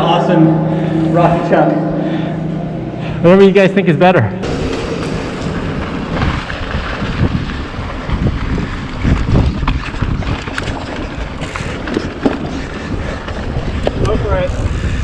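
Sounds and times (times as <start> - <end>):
wind buffeting microphone: 4.4 - 15.0.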